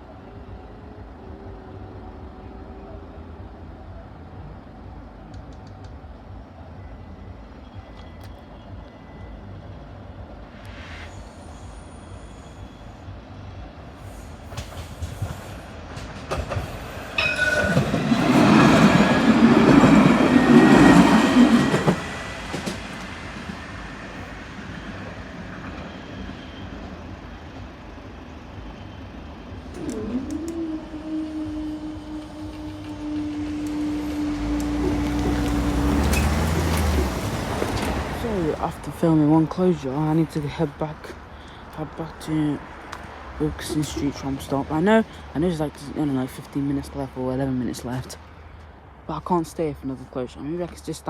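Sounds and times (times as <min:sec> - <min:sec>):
train wheels clattering on rails: 0:14.4 - 0:30.5.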